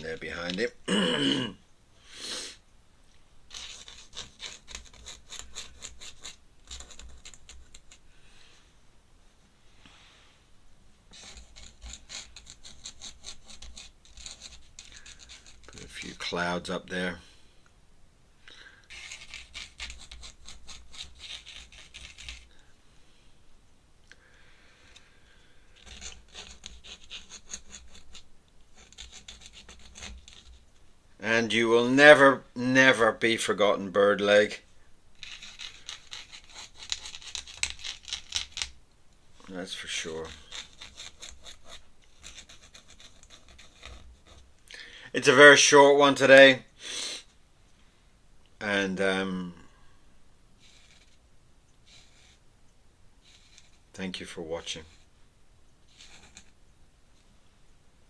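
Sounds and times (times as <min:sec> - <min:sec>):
pen scratching on paper: 0:03.5 - 0:08.0, 0:11.1 - 0:16.2, 0:18.9 - 0:22.5, 0:25.8 - 0:30.7, 0:35.2 - 0:38.6, 0:40.0 - 0:44.5, 0:50.6 - 0:51.2, 0:51.9 - 0:52.4, 0:53.2 - 0:53.8, 0:55.9 - 0:56.6.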